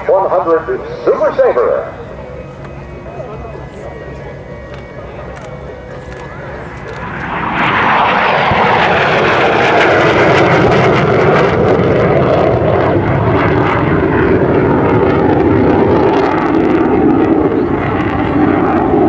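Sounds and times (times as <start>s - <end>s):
jet engine roaring on flyby: 0.0s - 19.0s.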